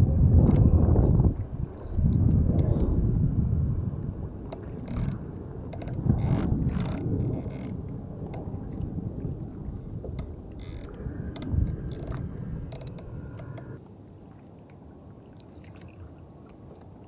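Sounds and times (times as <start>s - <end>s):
wind noise: 0.0s - 13.8s
rumbling water: 0.0s - 17.0s.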